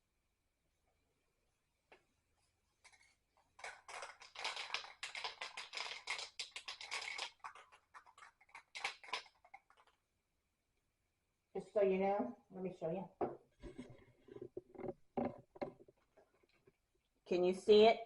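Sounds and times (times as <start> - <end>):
small clicks and scratchy taps: 13.6 - 16.8.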